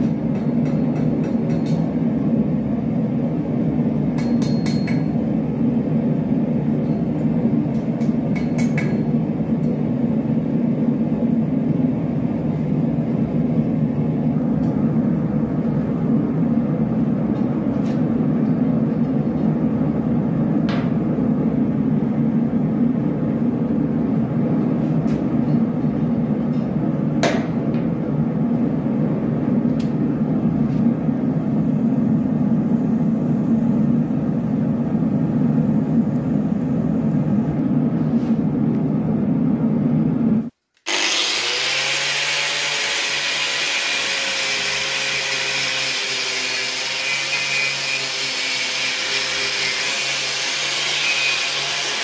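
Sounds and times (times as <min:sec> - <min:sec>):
power tool whining and hissing: 0:40.8 - 0:52.0.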